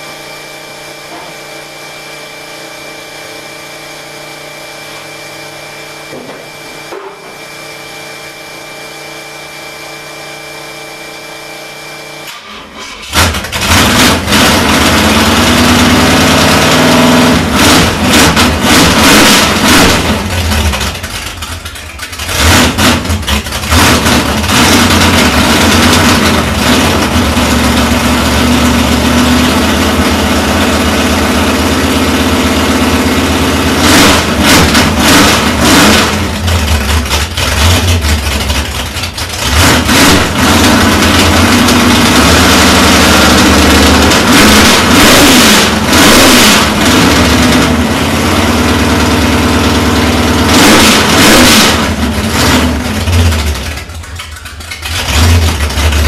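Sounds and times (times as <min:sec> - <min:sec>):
car engine starting and revving: 0:12.2 - 0:56.0.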